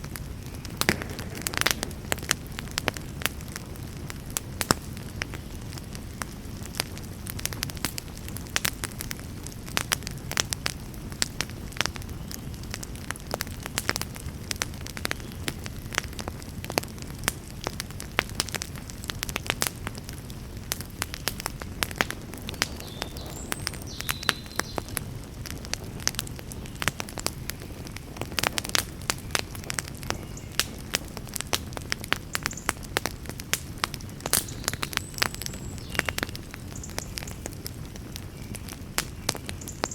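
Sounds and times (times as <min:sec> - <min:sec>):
fire low rush: 0:00.0 - 0:12.0
campfire crackling and popping: 0:00.0 - 0:39.9.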